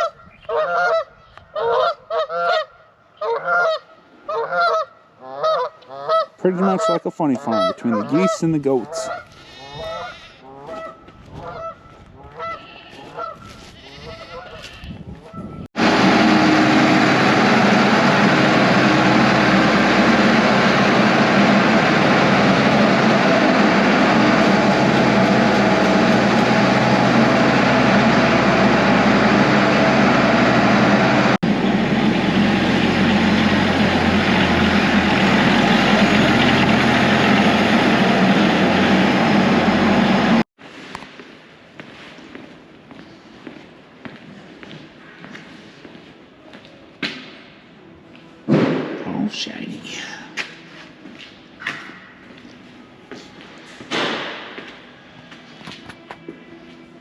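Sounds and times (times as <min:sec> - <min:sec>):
geese honking: 0:00.0 - 0:15.6, 0:17.9 - 0:40.4.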